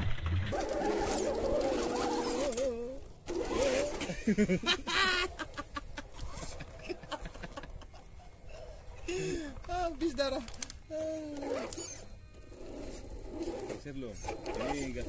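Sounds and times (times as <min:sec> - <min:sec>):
birds cooing: 0:00.5 - 0:09.7.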